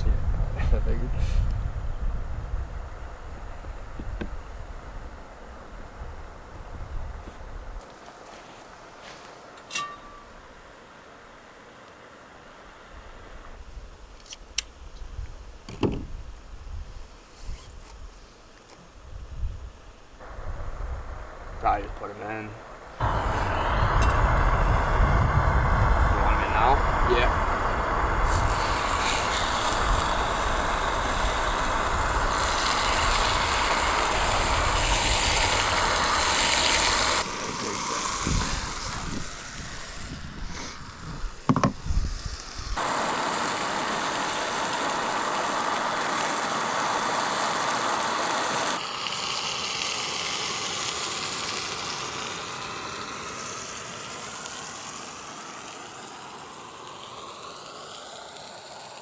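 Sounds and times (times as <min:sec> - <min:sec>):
steaks sizzling in a pan: 0:21.7 - 0:40.0, 0:42.2 - 0:59.0.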